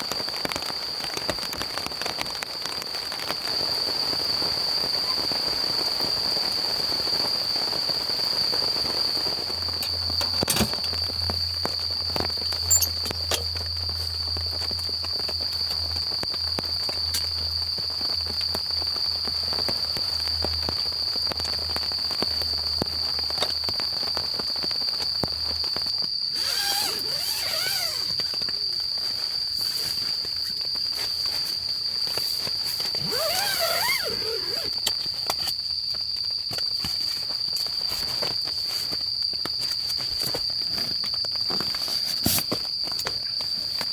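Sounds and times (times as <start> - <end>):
high-pitched insect trill: 0.0 - 43.9.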